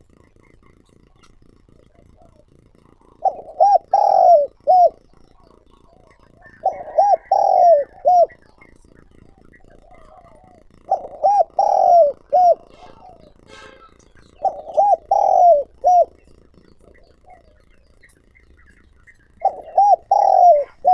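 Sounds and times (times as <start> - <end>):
dove cooing: 0.0 - 20.9.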